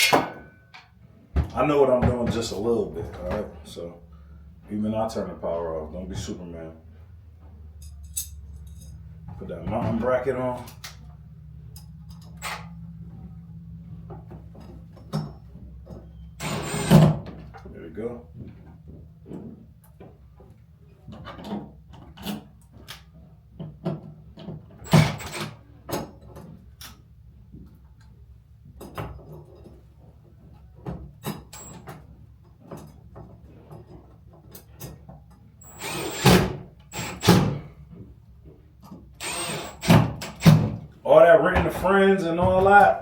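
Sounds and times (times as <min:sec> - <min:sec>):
knocks and rattles on light fixture: 0:01.3 - 0:03.5.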